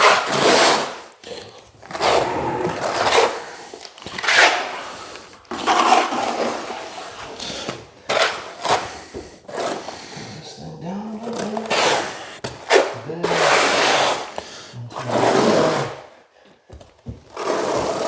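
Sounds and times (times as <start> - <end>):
scraping on a hard surface: 1.9 - 4.6.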